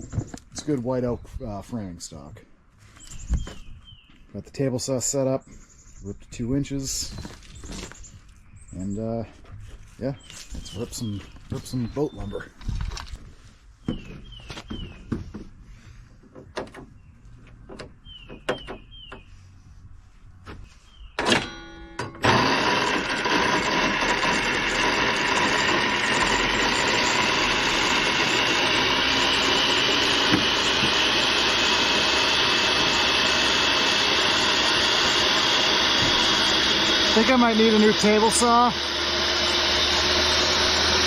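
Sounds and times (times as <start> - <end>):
table saw cutting wood: 21.4 - 41.0.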